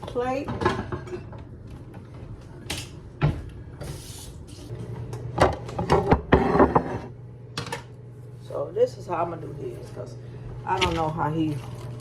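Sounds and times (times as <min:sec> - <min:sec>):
kitchen knocks and clinks: 0:00.0 - 0:01.4
steady low hum: 0:00.0 - 0:12.0.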